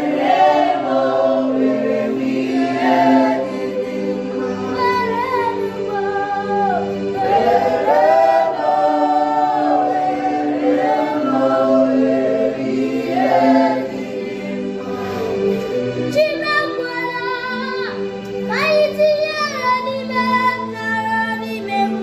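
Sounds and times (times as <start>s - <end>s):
sustained backing chords: 0.0s - 22.0s
voices singing in harmony: 0.0s - 22.0s.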